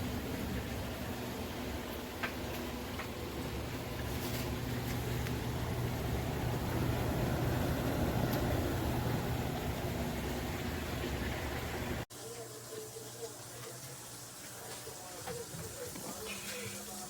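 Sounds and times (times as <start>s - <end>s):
tumble dryer motor hum: 0.0s - 12.0s.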